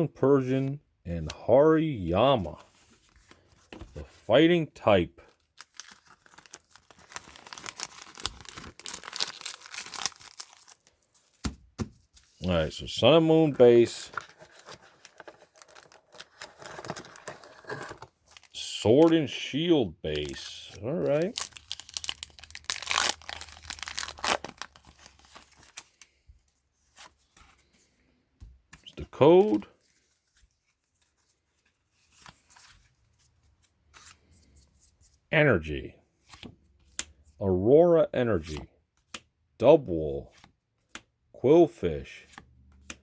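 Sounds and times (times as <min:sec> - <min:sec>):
foil wrapper crinkling and tearing: 0:05.4 - 0:11.3, 0:14.4 - 0:19.2, 0:20.1 - 0:26.0.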